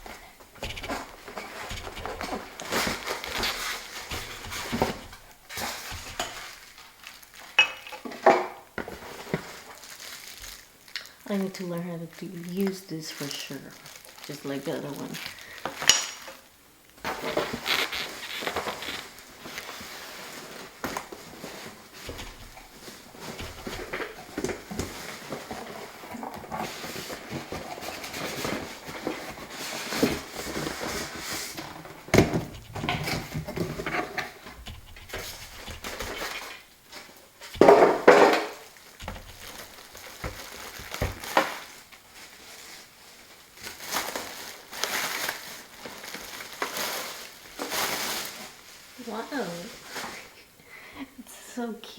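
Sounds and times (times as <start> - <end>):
plastic wrapping rustling: 0.0 - 50.9
knocks and clatter of parts: 20.5 - 41.8.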